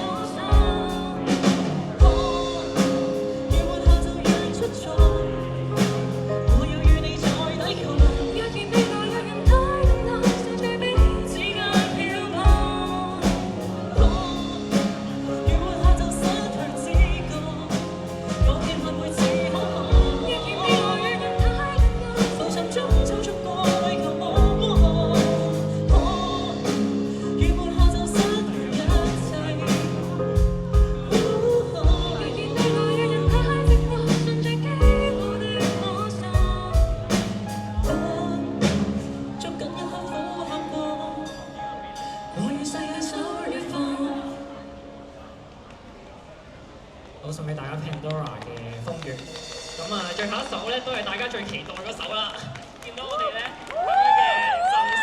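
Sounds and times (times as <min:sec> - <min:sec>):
drum kit beat: 0:00.0 - 0:39.4, 0:48.8 - 0:51.8
live band with singer: 0:00.0 - 0:55.0.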